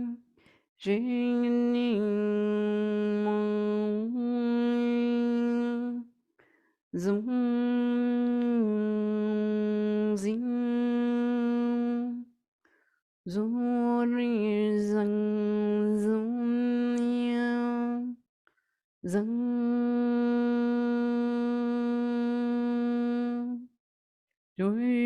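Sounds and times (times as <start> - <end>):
breath: 0.3 - 0.7, 6.4 - 6.8, 12.6 - 13.0, 18.5 - 18.8.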